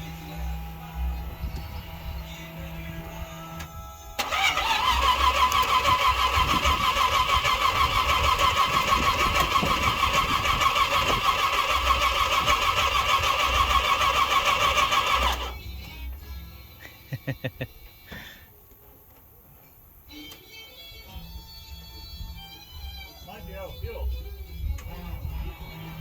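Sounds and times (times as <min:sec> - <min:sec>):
supercharged engine starting: 0:04.2 - 0:15.6.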